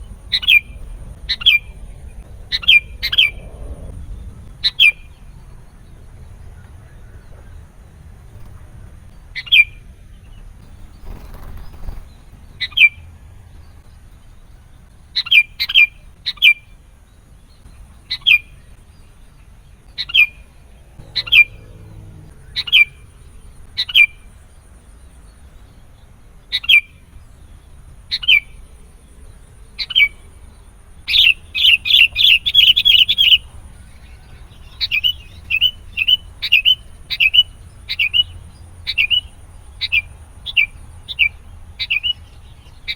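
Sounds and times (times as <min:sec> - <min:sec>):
bulbul calling: 0:00.0 - 0:13.1, 0:15.2 - 0:16.7, 0:19.9 - 0:24.4, 0:31.1 - 0:42.9.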